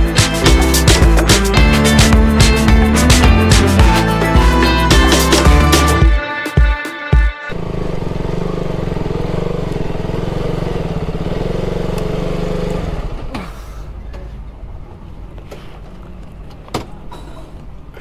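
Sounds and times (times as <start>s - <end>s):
motorcycle engine: 7.5s - 13.4s.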